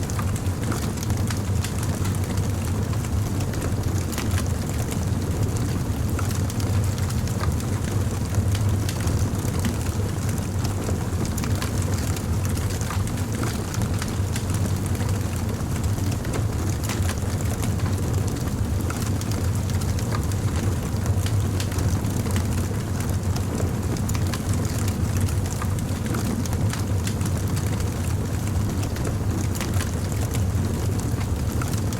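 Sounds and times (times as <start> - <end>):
fire crackling: 23.9 - 28.1.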